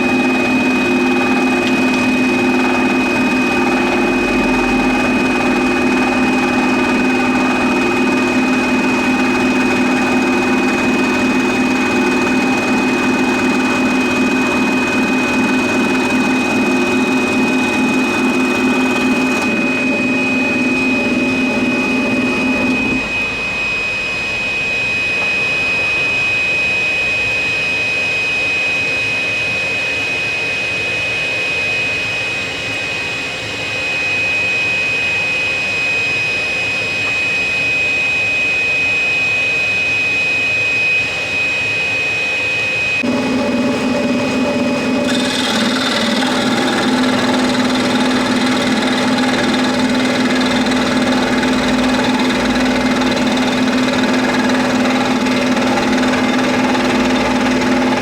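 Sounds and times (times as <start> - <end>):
scroll saw cutting wood: 0.0 - 23.5, 43.0 - 58.0.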